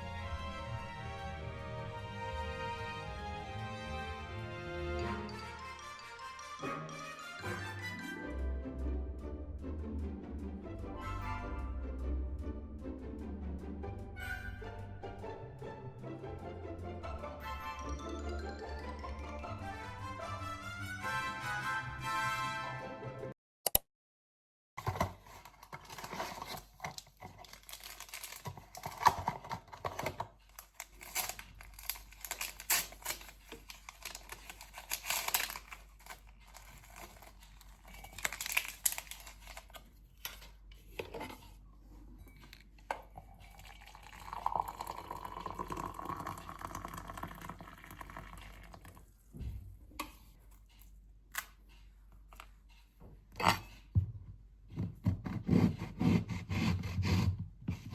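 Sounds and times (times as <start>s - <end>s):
rustling and crinkling of unwrapping: 24.8s - 41.6s.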